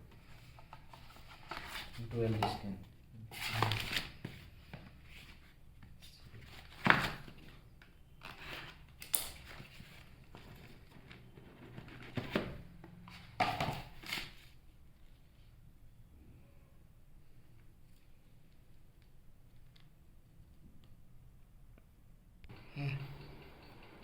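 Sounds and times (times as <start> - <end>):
packaging crinkling and rustling: 3.4 - 5.5.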